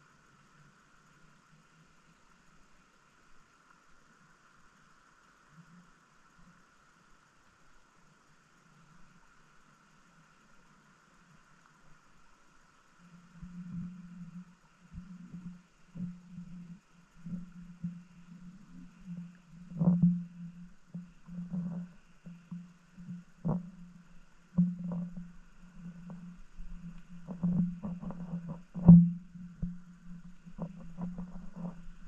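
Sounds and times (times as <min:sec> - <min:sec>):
muffled underwater water rumble: 0:00.0 - 0:32.0
underwater knocks and clicks: 0:13.3 - 0:32.0.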